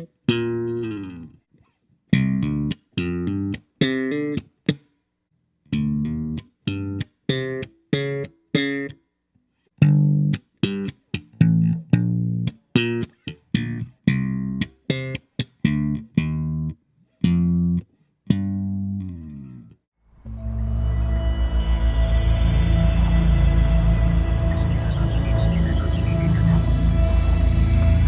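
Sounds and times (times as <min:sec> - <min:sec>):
electric bass guitar funk line: 0:02.2 - 0:04.4, 0:05.8 - 0:08.9, 0:09.8 - 0:19.7.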